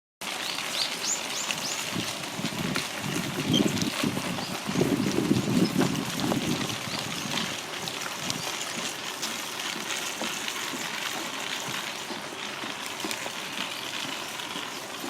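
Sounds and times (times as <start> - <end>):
wind buffeting microphone: 1.5 - 8.6.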